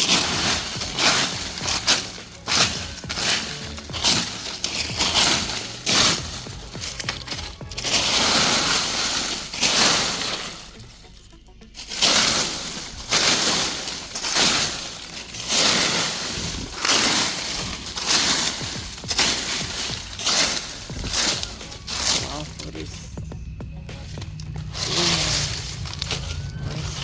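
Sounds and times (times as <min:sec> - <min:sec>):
dry leaves rustling by hand: 0:00.0 - 0:27.0.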